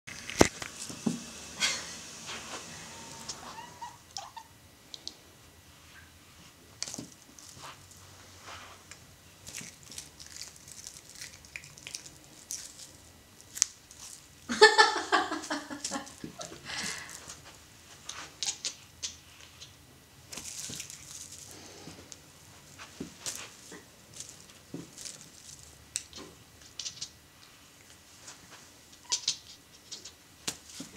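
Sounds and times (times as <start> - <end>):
kitten vocal noise: 2.9 - 4.5, 29.0 - 30.1.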